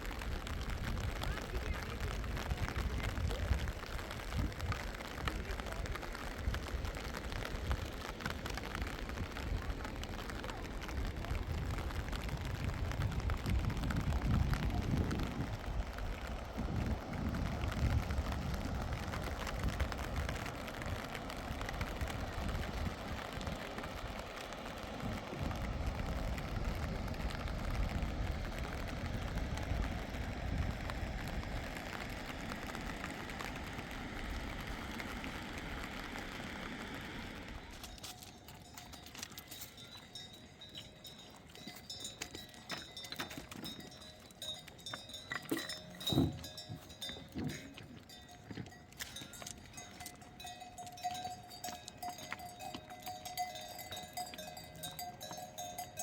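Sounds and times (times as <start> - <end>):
steady rushing noise: 0.0 - 38.8
clinking bell tones: 37.9 - 56.0.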